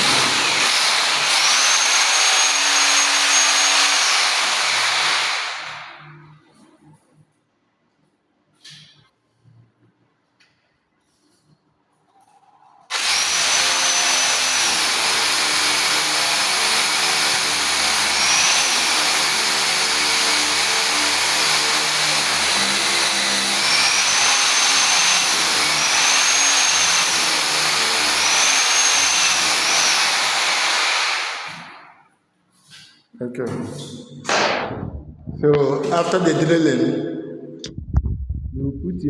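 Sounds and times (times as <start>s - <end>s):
electric drill boring into wall: 0.0s - 5.9s, 12.9s - 31.9s.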